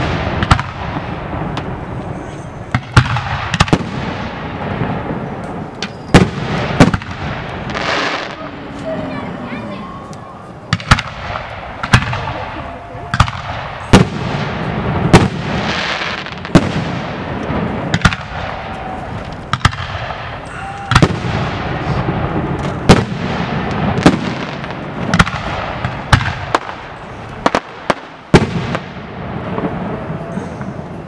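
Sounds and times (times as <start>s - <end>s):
firework display wash: 0.0s - 31.0s.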